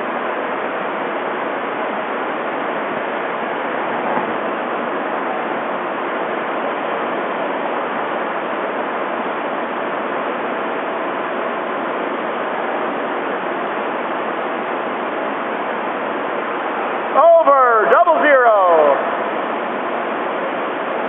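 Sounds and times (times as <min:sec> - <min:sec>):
electric fans blowing air: 0:00.0 - 0:21.0.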